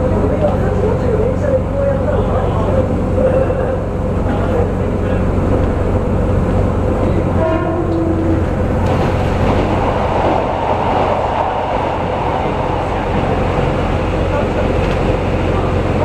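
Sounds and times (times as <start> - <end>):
diesel train rumbling: 0.0 - 16.0
train horn tone: 7.4 - 8.5
tunnel hiss: 8.2 - 16.0.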